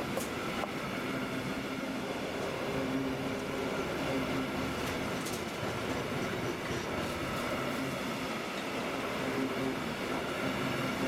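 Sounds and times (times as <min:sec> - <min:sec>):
wagon wheels rumbling on rails: 0:04.5 - 0:07.2.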